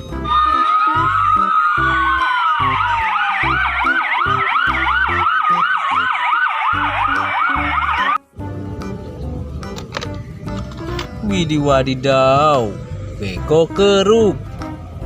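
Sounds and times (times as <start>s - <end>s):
background music with steady beat: 0.0s - 15.0s
toy fire truck siren: 0.2s - 8.2s.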